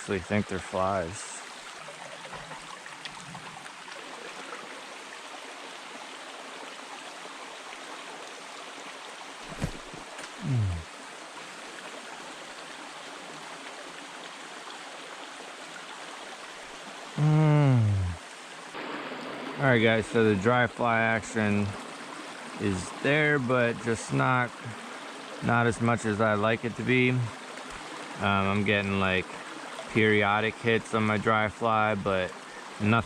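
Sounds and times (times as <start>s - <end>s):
stream water babbling: 0.0s - 33.0s
short falling vocal sound: 10.4s - 10.8s, 17.2s - 18.2s.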